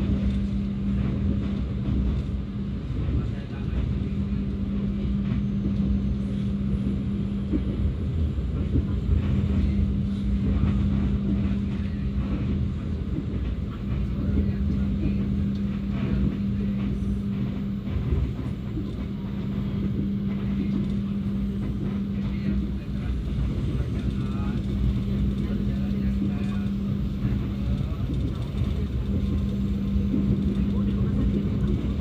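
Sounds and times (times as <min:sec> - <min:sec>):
train rumbling on track: 0:00.0 - 0:32.0.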